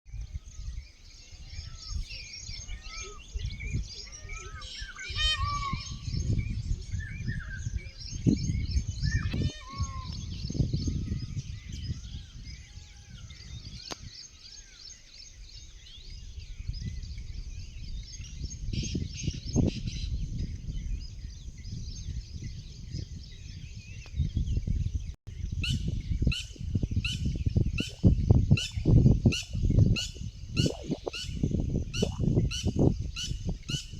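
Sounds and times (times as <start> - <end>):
birds chirping and whistling: 0.1 - 33.9.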